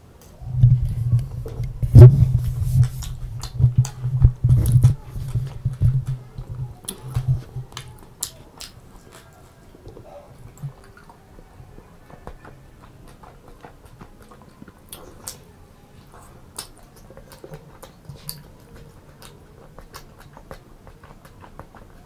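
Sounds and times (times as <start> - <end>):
wet chewing and smacking: 0.6 - 22.0
sharp mouth clicks: 1.1 - 9.3.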